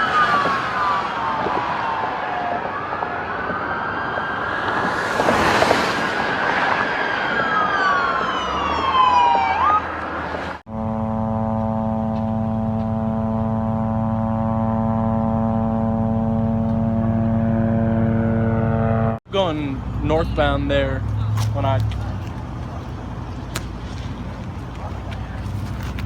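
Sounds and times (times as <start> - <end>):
police siren wailing: 0.0 - 10.5
steady drone with overtones: 10.7 - 19.2.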